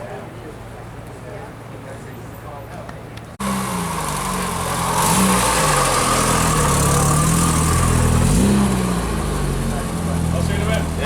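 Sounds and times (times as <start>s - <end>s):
car engine revving: 3.4s - 11.0s.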